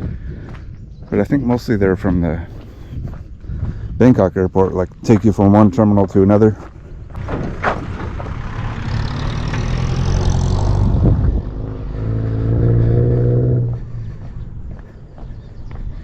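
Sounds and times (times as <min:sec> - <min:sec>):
vehicle passing by: 0:06.9 - 0:16.0.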